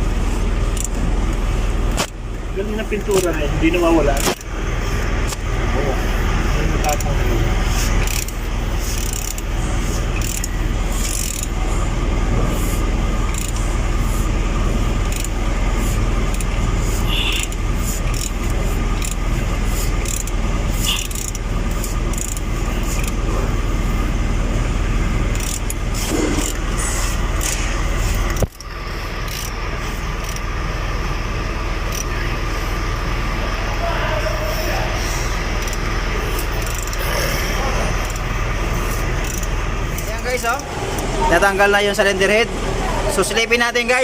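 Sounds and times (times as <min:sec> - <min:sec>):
steady background noise: 0:00.0 - 0:44.0
metal hand tools clicking and scraping: 0:06.8 - 0:11.6, 0:13.3 - 0:13.6, 0:15.1 - 0:23.2, 0:25.3 - 0:29.6, 0:30.2 - 0:30.5, 0:35.6 - 0:41.1.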